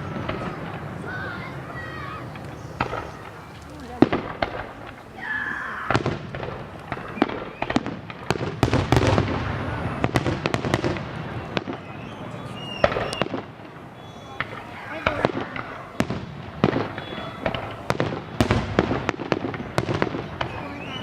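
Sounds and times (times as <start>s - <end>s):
fireworks bangs and crackles: 0.0s - 21.0s
low fireworks booms: 0.0s - 21.0s.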